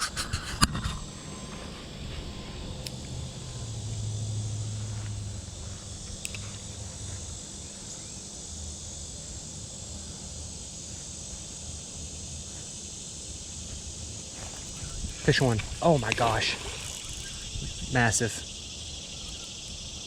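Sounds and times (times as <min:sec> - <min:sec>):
insects buzzing: 0:00.0 - 0:20.0
faint click: 0:06.2 - 0:06.6.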